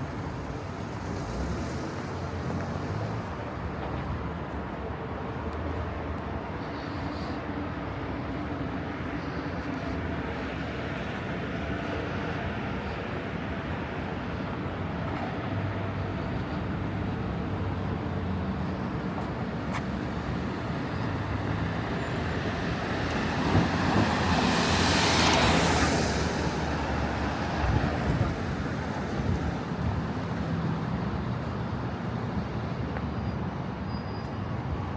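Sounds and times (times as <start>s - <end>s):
traffic engine hum: 0.0s - 34.9s
vehicle passing close by: 22.3s - 29.6s.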